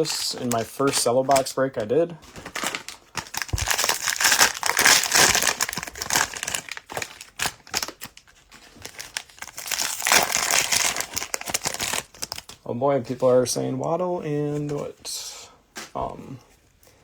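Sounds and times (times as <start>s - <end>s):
plastic wrapping crinkling: 0.0s - 13.6s.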